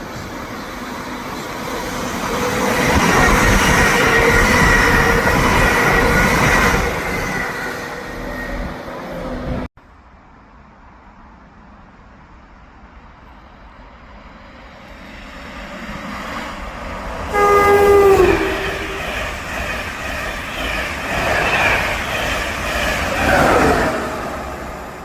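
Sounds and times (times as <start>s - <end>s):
train rushing past: 0.0s - 9.7s, 13.7s - 25.0s
train horn: 17.3s - 19.4s.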